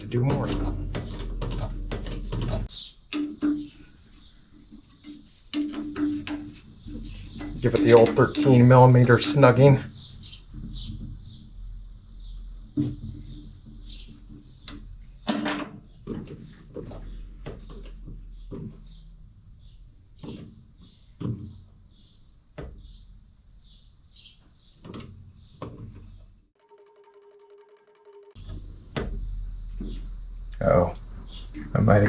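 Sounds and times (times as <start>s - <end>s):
knocks and clunks on metal gearbox: 0.0s - 3.9s, 5.0s - 11.4s, 12.7s - 18.9s
insect chirps: 0.0s - 32.0s
insects trilling: 0.0s - 32.0s.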